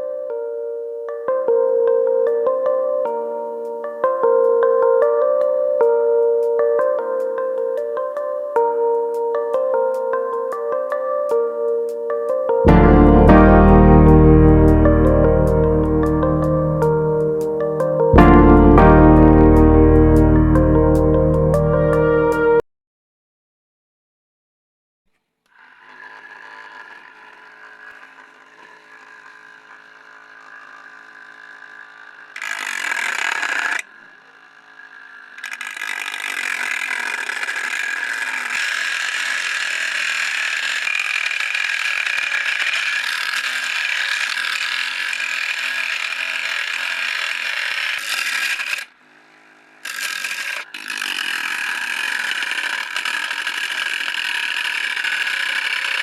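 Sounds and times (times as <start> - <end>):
angle grinder whine: 0.0 - 22.6, 25.5 - 56.0
loud grinding: 12.6 - 20.9, 25.5 - 56.0.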